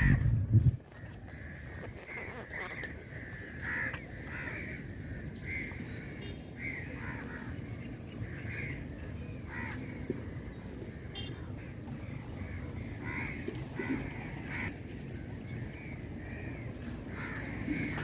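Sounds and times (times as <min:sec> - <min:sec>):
steady low rumble: 0:00.0 - 0:01.9
crows cawing: 0:02.7 - 0:05.7, 0:17.2 - 0:18.0.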